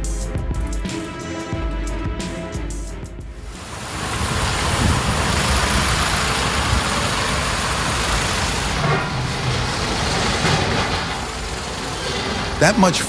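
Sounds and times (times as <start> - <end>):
truck engine rumble: 2.4 - 13.0
road and wind noise: 3.4 - 12.7.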